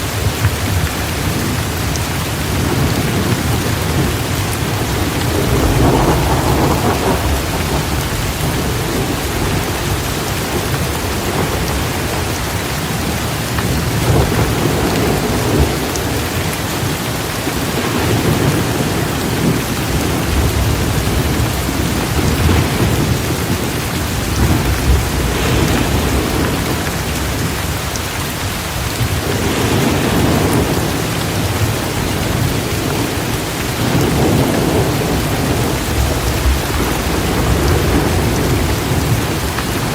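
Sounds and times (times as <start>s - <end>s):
heavy rain downpour: 0.0s - 39.9s
thunder rumbling: 0.0s - 39.9s.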